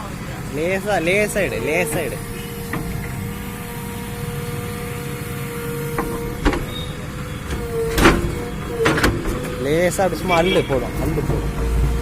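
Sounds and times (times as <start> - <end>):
diesel engine running with whine: 0.0 - 12.0
sharp clanks: 0.9 - 9.7.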